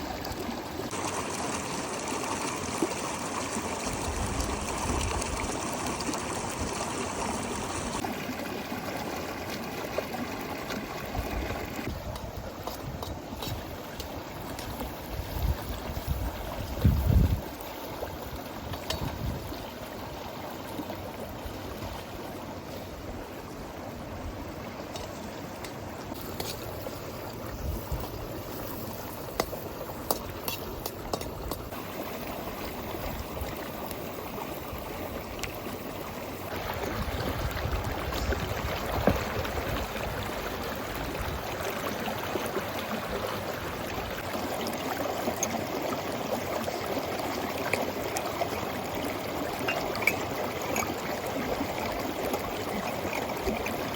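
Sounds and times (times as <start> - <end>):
running water: 0.0 - 53.9.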